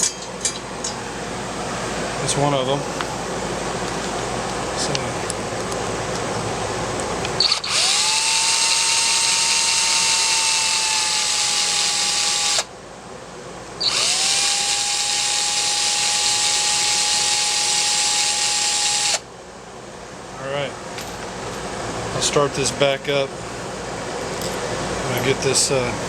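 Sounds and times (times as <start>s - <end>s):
power drill whine: 7.4s - 12.7s, 13.8s - 19.3s.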